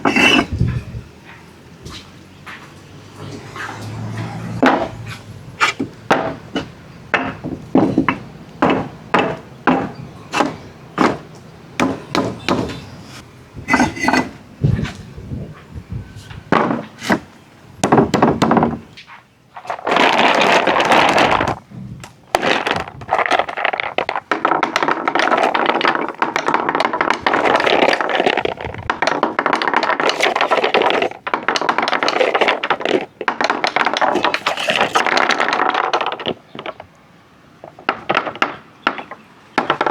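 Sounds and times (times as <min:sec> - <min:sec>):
marbles rolling on wooden track: 0:00.0 - 0:00.6, 0:13.7 - 0:14.4, 0:19.6 - 0:21.6, 0:22.3 - 0:36.9
marbles clacking through track: 0:22.4 - 0:36.9.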